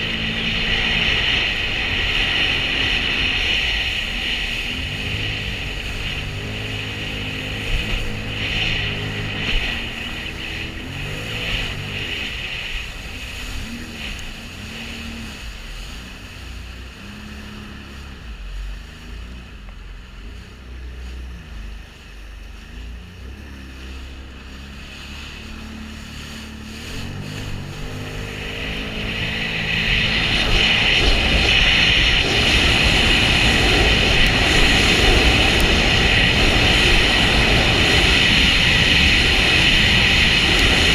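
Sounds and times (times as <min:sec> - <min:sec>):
jet ski engine revving: 0:00.0 - 0:40.9
water rushing: 0:00.0 - 0:40.9.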